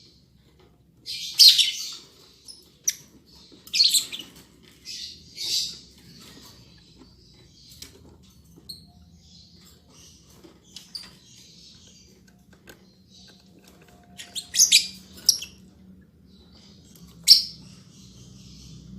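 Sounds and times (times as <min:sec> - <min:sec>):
lovebirds raspy calls: 0:01.0 - 0:18.9.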